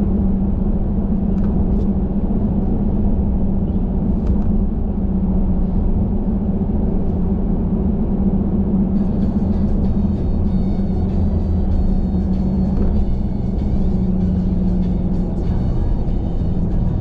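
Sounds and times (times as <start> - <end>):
car road noise rumble: 0.0 - 17.0
faint music: 9.0 - 17.0.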